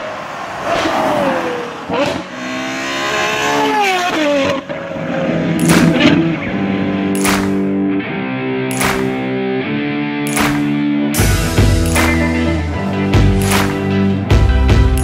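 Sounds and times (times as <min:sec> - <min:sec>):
sports car engine revving: 0:00.0 - 0:07.6
exhaust cracks: 0:04.1 - 0:07.8.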